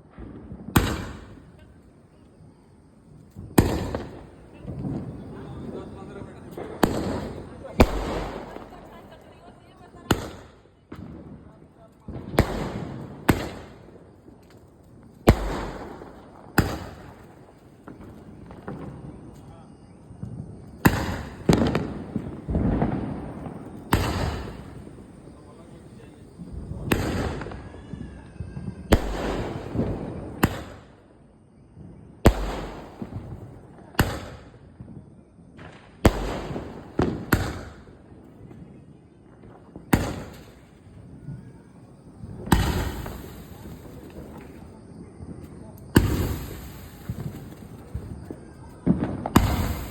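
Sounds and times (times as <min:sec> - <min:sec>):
firecracker bangs with echo: 0:00.0 - 0:01.6, 0:03.5 - 0:09.2, 0:12.1 - 0:14.0, 0:15.2 - 0:19.2, 0:20.8 - 0:28.0, 0:28.8 - 0:31.0, 0:32.3 - 0:34.6, 0:35.6 - 0:37.9, 0:39.9 - 0:44.6, 0:45.9 - 0:49.9.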